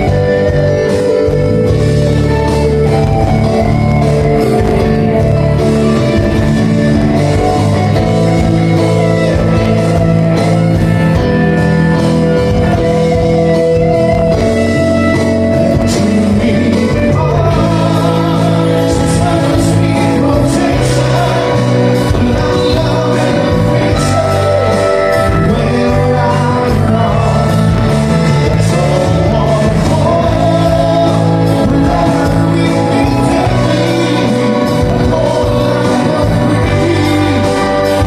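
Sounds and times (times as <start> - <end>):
live band playing: 0.0 - 38.0
person singing: 15.1 - 38.0.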